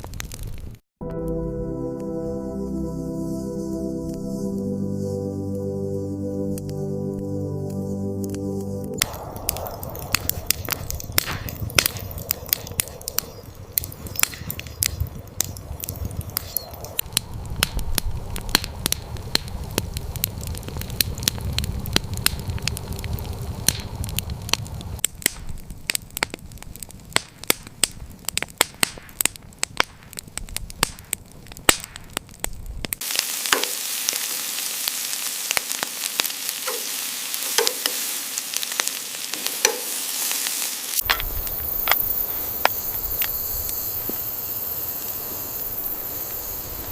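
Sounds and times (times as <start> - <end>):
wood fire crackling: 0.0 - 0.8, 3.1 - 46.9
food sizzling in a hot pan: 33.0 - 46.9.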